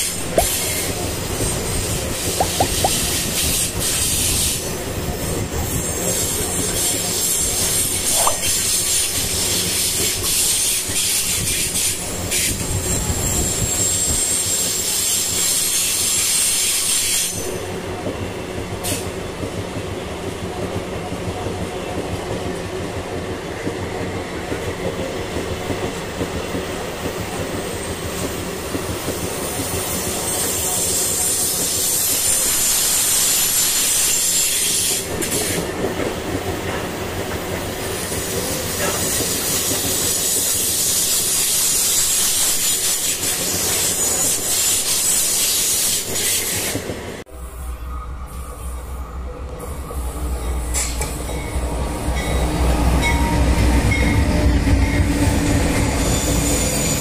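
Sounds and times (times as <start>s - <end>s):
high-pitched wheel squeal: 55.7s - 57.0s.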